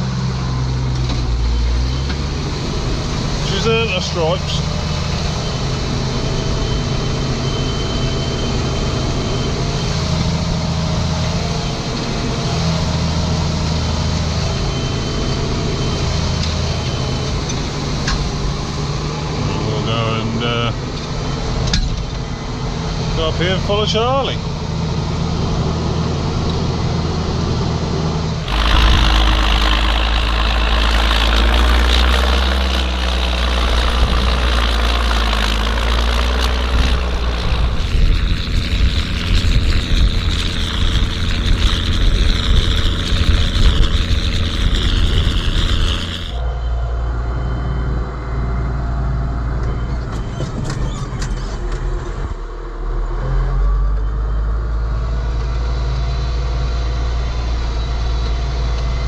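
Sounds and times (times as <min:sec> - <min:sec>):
tractor diesel engine running: 0:28.5 - 0:46.4.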